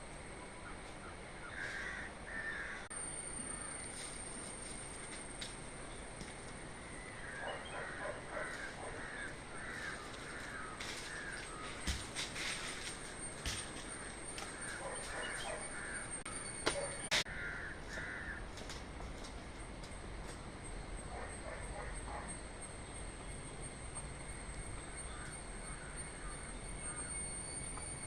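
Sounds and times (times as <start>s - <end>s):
crows cawing: 0.9s - 2.9s, 6.9s - 18.7s, 24.8s - 27.2s.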